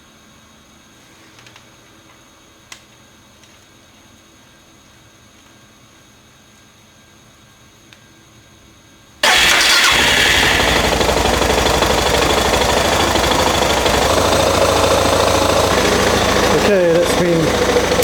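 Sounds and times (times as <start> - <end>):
motorcycle engine starting and idling: 9.2 - 18.0.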